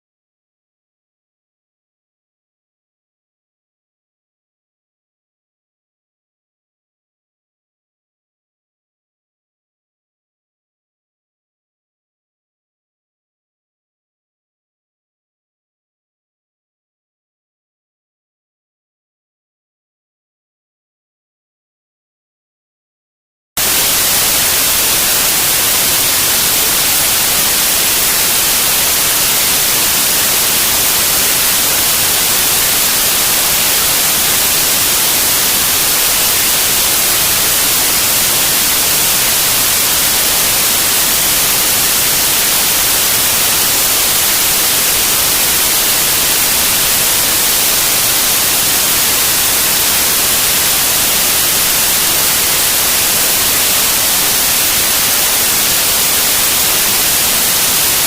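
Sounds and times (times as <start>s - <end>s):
radio static hiss: 23.6s - 58.0s.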